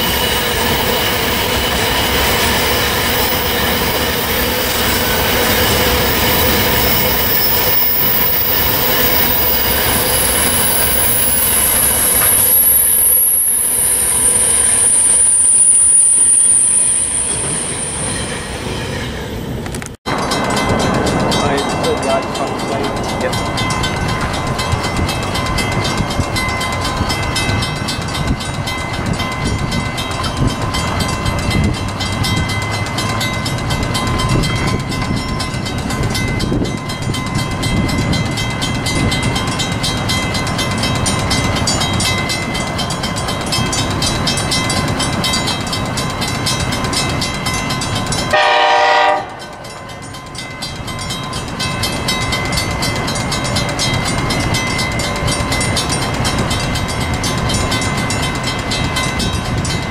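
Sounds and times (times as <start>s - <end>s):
train rhythmic clatter: 0.0s - 59.9s
locomotive horn blast: 48.3s - 49.4s.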